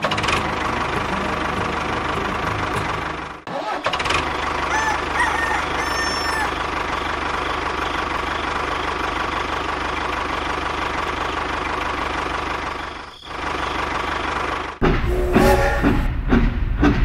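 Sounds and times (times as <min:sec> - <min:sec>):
tractor engine running: 0:00.0 - 0:17.0
louder different sound: 0:14.8 - 0:16.2.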